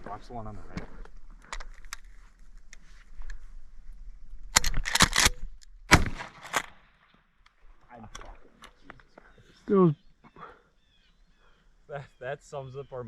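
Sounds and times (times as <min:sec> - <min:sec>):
shotgun shots: 0:04.8 - 0:07.1.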